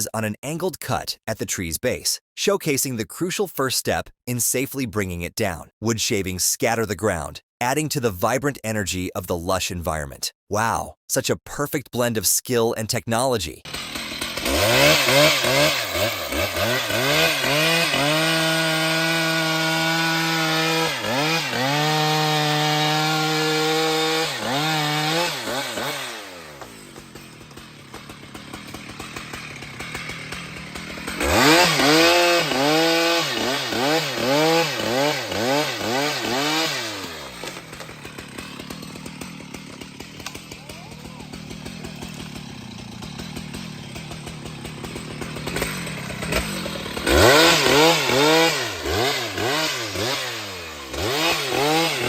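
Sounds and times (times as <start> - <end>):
chainsaw revving: 13.6 - 52.0.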